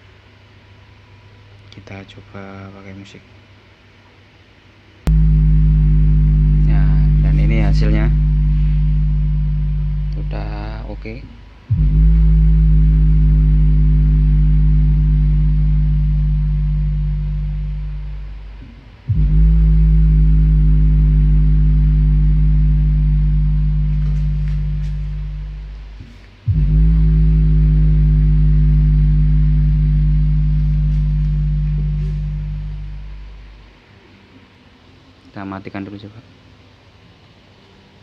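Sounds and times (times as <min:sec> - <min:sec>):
deep bass notes from subwoofer: 0:05.1 - 0:33.9.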